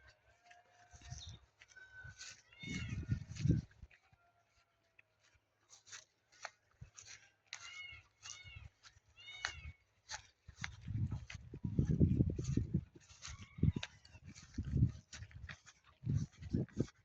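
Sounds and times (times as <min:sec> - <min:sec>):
cat meowing: 0:09.2 - 0:09.7.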